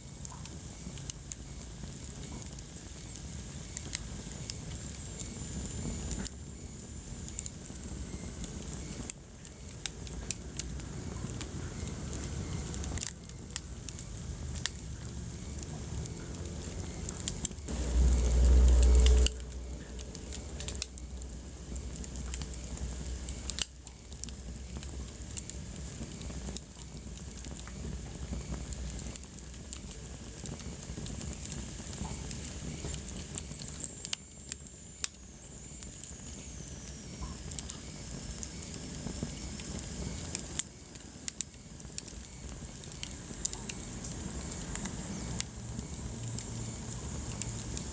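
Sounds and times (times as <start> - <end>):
wood fire crackling: 0.0 - 47.9
loud low rumble: 17.7 - 22.0.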